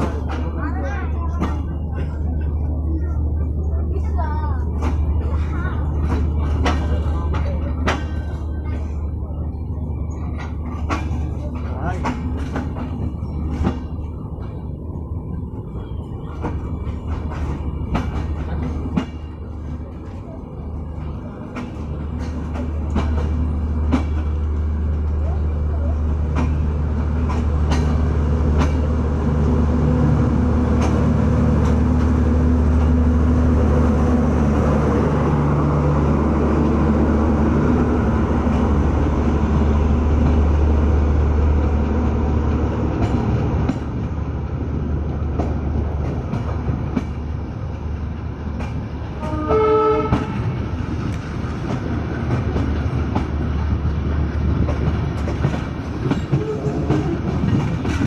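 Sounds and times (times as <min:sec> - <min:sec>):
train running on rails: 0:00.0 - 0:58.0
wheels clacking over rail joints: 0:20.9 - 0:29.6, 0:45.0 - 0:58.0
train horn blast: 0:49.2 - 0:50.5.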